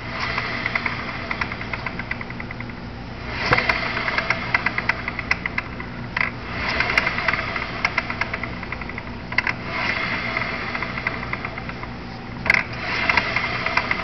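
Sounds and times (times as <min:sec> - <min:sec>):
rapid regular ticking from wheel: 0:00.0 - 0:14.0
vehicle running hum: 0:00.0 - 0:14.0.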